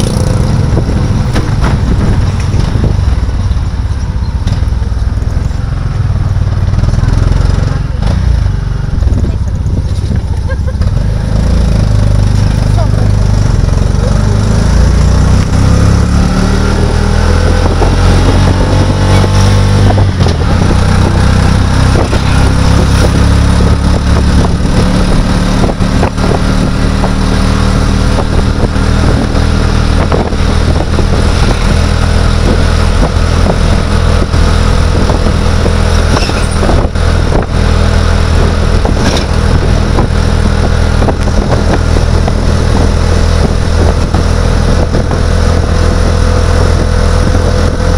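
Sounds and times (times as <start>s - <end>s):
road knocks and rattles: 0.0s - 13.5s, 17.5s - 47.9s
vehicle engine accelerating: 0.0s - 47.9s.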